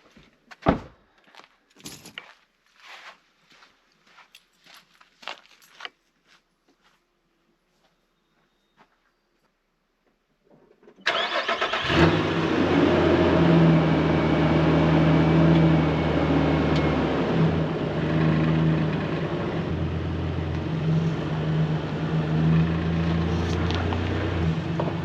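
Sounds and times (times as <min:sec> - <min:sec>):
vehicle engine starting and running: 0:10.8 - 0:25.0.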